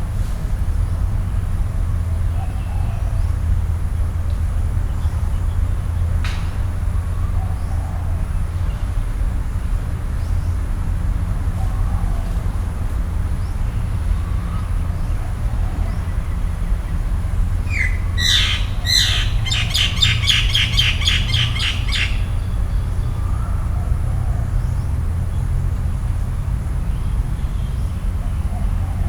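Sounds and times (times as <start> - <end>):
steady low rumble: 0.0 - 29.0
bird calling harsh notes: 17.6 - 22.8.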